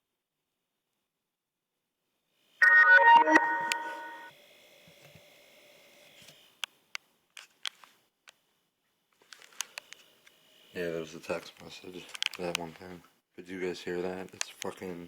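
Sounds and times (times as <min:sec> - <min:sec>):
phone message alert chime: 0:02.6 - 0:04.3.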